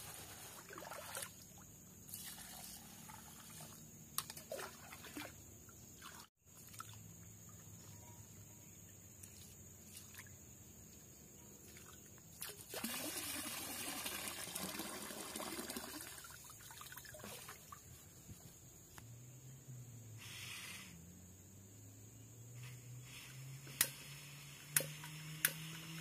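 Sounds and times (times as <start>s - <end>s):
water pouring: 2.1s - 3.8s, 12.4s - 17.8s.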